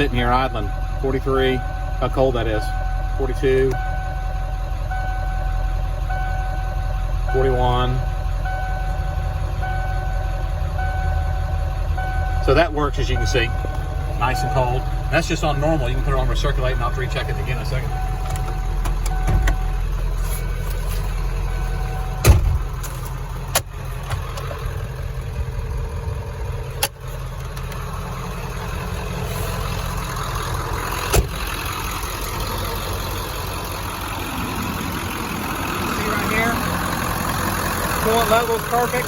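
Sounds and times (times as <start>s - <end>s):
diesel engine idling: 0.0s - 39.0s
sharp clunks: 22.2s - 22.9s, 31.1s - 31.4s.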